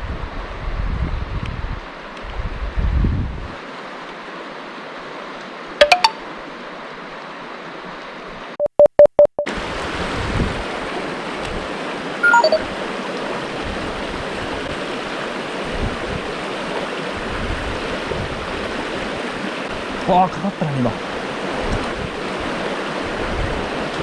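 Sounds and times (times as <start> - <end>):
mountain stream rushing: 3.6 - 8.0, 9.5 - 24.0
short falling tone: 5.8 - 6.2
loud electronic beeps: 12.2 - 12.6.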